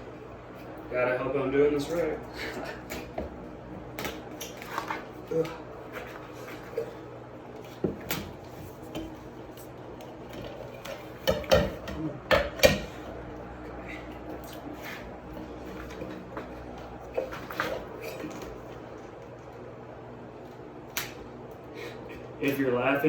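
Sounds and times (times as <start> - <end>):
knocks and rattles of fan parts: 7.6 - 13.1.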